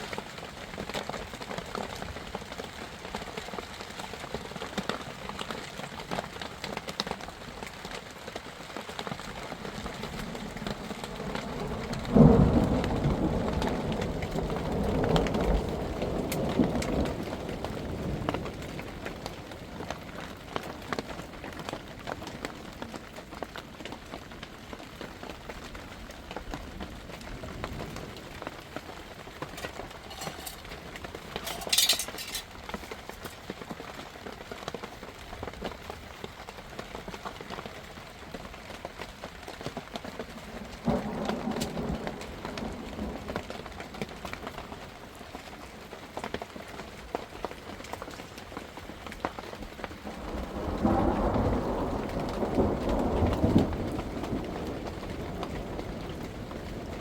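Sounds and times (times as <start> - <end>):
heavy rain pattering: 0.0 - 57.0
thunder rumbling: 9.9 - 19.6, 26.6 - 33.2, 40.6 - 43.7, 50.1 - 57.0.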